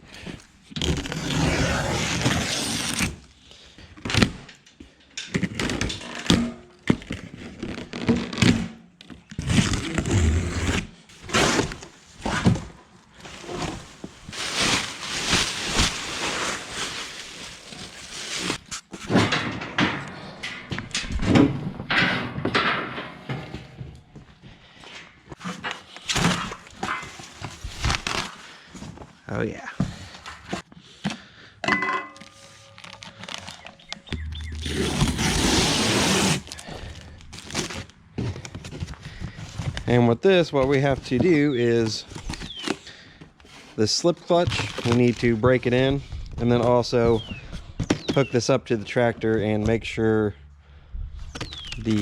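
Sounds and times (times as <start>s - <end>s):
packaging scraping and rustling: 0.7s - 3.2s, 9.2s - 19.1s, 25.4s - 28.6s, 32.1s - 39.9s, 41.6s - 42.9s, 43.6s - 45.8s.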